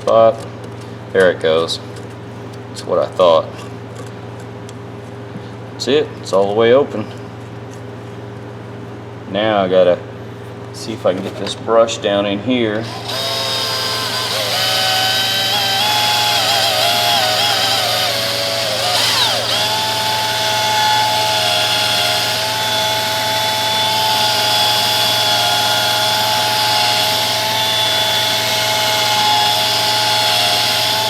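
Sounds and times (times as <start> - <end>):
power tool motor whining: 12.8 - 31.0.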